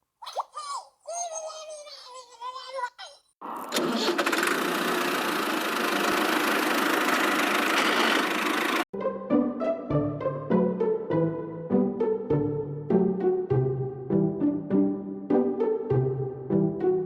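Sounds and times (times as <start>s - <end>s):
engine cranking and running roughly: 3.7s - 8.8s.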